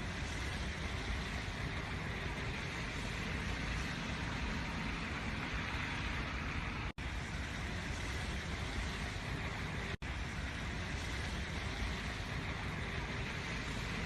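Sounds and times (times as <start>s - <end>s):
car traffic road noise: 0.0s - 14.0s.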